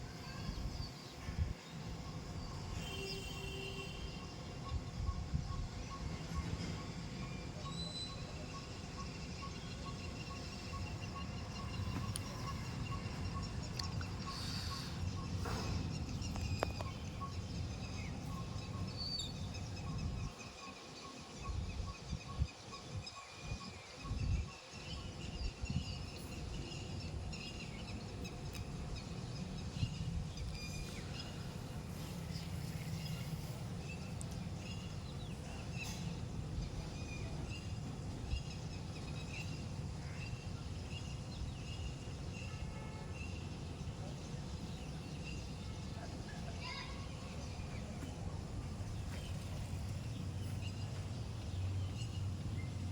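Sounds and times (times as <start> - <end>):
wind buffeting microphone: 0.0 - 2.8, 4.5 - 6.9, 11.0 - 20.7, 21.3 - 35.5
birds chirping: 0.0 - 52.9.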